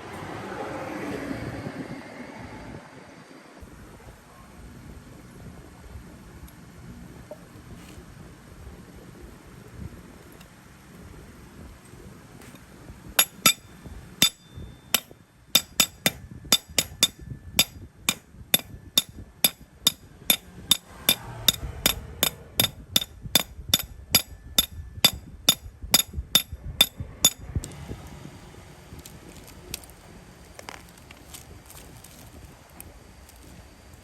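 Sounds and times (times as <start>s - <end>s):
hammer striking metal: 13.2s - 27.4s.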